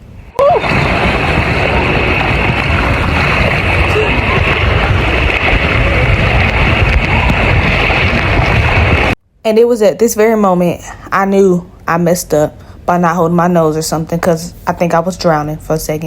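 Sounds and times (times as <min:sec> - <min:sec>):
water and air rushing: 0:00.0 - 0:09.2.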